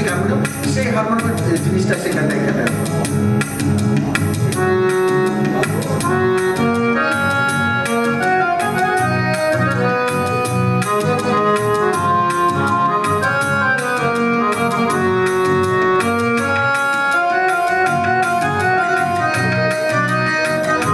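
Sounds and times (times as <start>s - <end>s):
drum rhythm accompaniment: 0.0s - 20.9s
keyboard harmonium melody: 0.0s - 20.9s.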